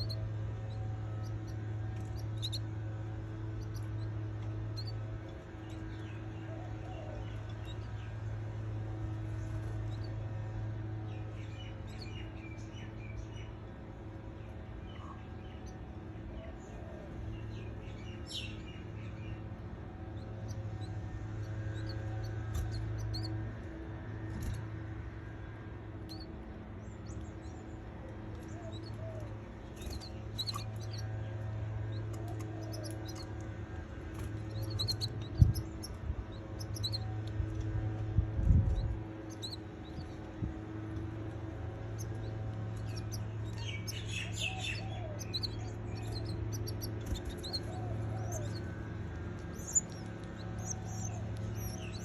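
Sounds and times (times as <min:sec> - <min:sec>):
baby birds chirping: 0:00.0 - 0:08.4, 0:20.1 - 0:23.4, 0:28.3 - 0:33.4, 0:34.0 - 0:52.0
steady low hum: 0:00.0 - 0:52.0.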